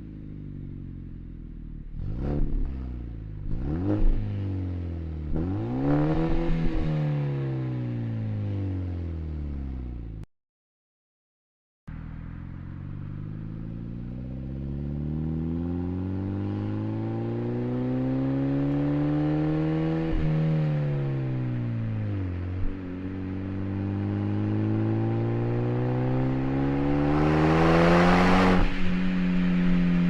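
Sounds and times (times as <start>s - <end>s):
car engine revving: 1.9s - 6.9s, 21.4s - 29.8s.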